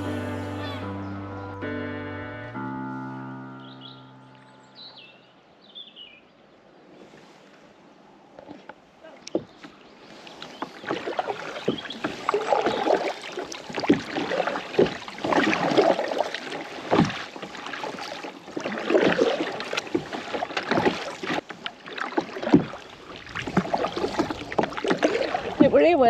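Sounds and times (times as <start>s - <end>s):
paddle dipping through water: 0.0s - 1.1s, 6.6s - 26.0s.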